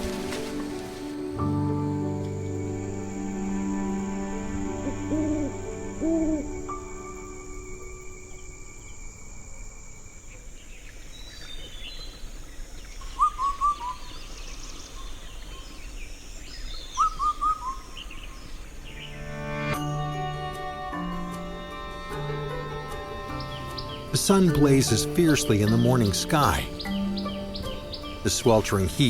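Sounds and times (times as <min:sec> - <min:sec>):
soft sustained music: 0:00.0 - 0:10.2, 0:18.8 - 0:29.0
high bird chirps: 0:23.2 - 0:28.9.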